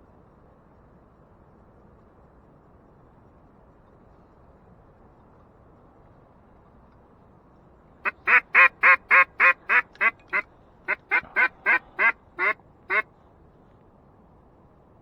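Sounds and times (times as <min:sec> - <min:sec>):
duck call quacks: 0:08.1 - 0:13.0.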